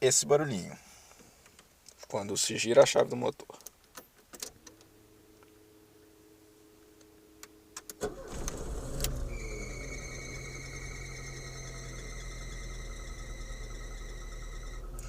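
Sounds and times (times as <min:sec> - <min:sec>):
high engine whine: 0:04.8 - 0:15.0
car engine cranking and idling: 0:07.8 - 0:15.0.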